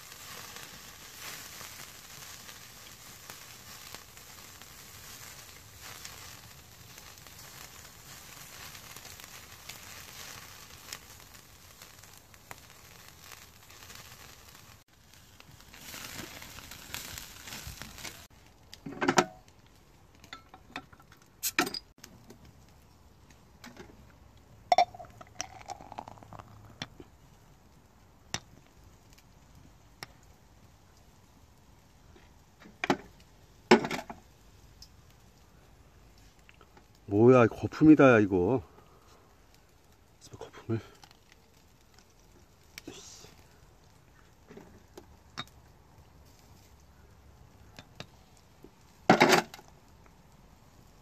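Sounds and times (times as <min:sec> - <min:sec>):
meat sizzling on a grill: 0:00.0 - 0:20.3, 0:21.3 - 0:51.0
glass clinks and knocks: 0:24.7 - 0:25.2.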